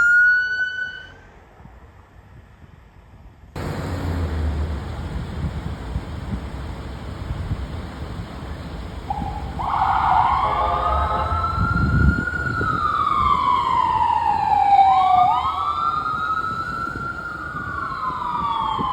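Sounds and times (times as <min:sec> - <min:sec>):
electronic siren wailing: 0:00.0 - 0:01.2, 0:09.1 - 0:18.9.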